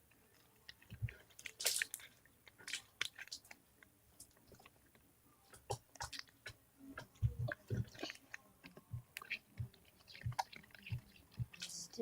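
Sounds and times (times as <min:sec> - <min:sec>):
slime squished by hand: 0:00.6 - 0:03.6.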